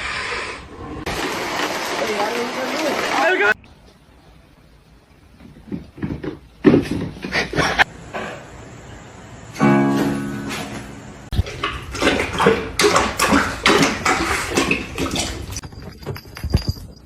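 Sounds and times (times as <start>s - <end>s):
acoustic guitar music: 9.6s - 11.3s.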